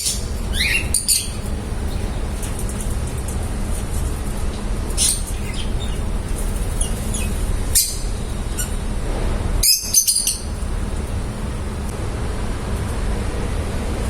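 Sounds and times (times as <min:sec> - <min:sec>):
birds chirping high: 0:00.0 - 0:03.0, 0:04.5 - 0:11.9.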